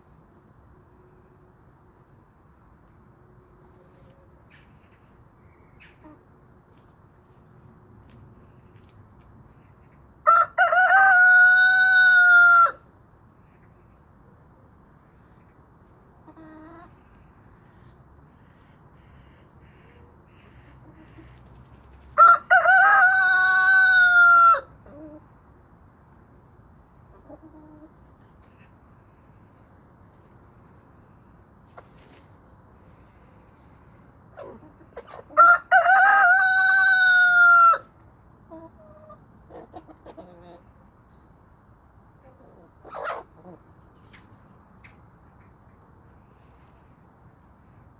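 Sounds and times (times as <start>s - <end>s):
chickens clucking: 4.5s - 6.9s, 15.8s - 17.4s, 19.5s - 25.3s, 27.0s - 28.8s, 31.6s - 32.4s, 34.3s - 37.8s, 38.4s - 40.8s, 42.2s - 46.8s
rooster crowing: 10.3s - 12.8s, 22.2s - 24.7s, 35.4s - 37.9s
chicken call: 22.2s - 25.1s.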